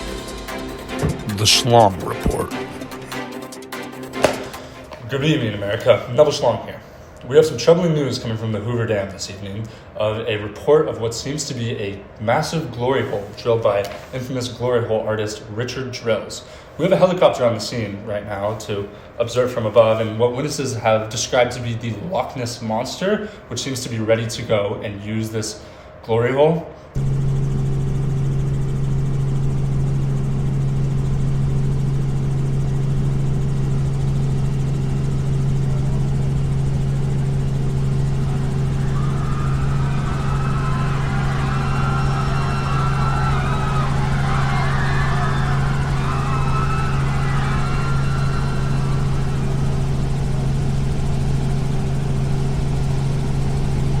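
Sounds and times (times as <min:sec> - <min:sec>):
mechanical drone with low hum: 0:27.0 - 0:54.0.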